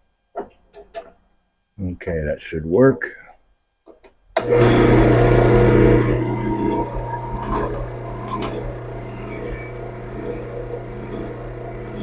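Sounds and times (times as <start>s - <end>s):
drill press motor humming: 4.4s - 12.0s.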